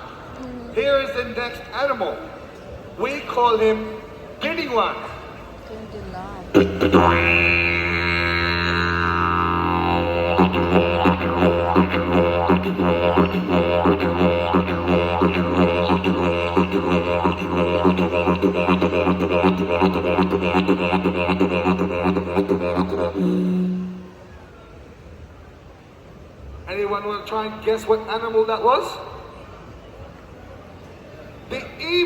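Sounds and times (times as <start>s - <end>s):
didgeridoo drone: 6.5s - 24.3s
didgeridoo rhythmic pulses: 6.5s - 24.3s
didgeridoo high held note: 6.5s - 24.4s.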